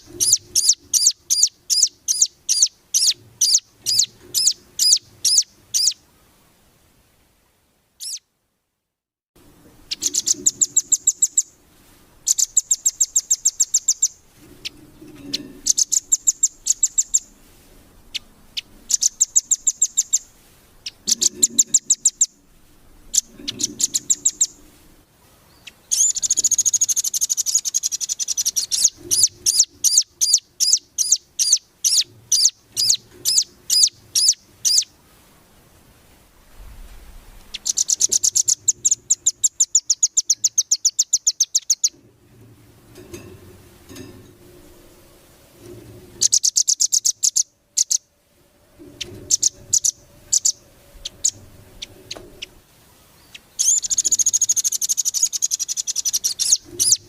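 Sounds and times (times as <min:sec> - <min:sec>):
bird singing high trills: 0:00.0 - 0:06.0, 0:08.0 - 0:08.2, 0:09.9 - 0:11.6, 0:12.3 - 0:17.4, 0:18.1 - 0:22.4, 0:23.1 - 0:24.6, 0:25.5 - 0:34.9, 0:37.5 - 0:42.0, 0:46.2 - 0:48.1, 0:49.0 - 0:52.6, 0:53.2 - 0:57.0.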